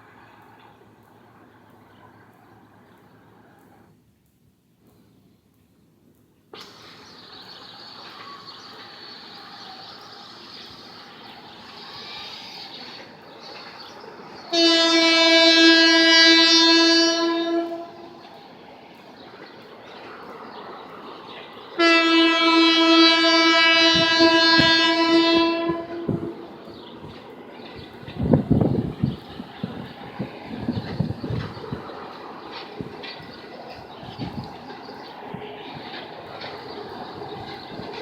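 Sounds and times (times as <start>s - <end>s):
passing train running: 0.0s - 38.0s
locomotive horn blasts: 14.5s - 18.3s, 21.8s - 26.6s.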